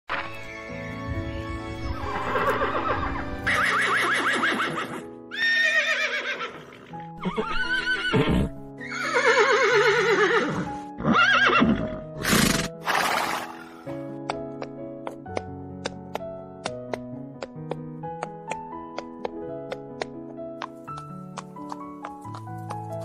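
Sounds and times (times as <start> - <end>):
horse whinnying: 2.1 - 13.9.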